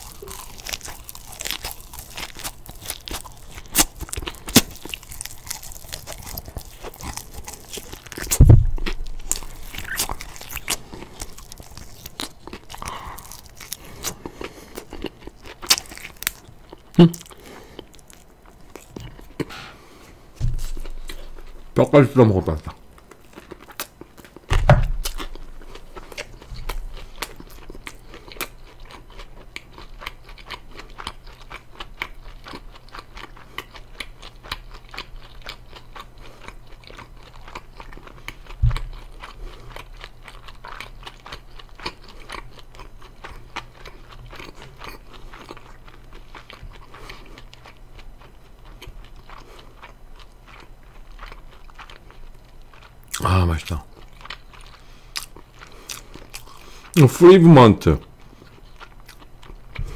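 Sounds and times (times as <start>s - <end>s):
chewing crispy chicken: 0.0s - 19.7s, 20.6s - 59.9s
thump: 8.4s - 8.8s, 20.4s - 20.7s, 24.5s - 25.0s.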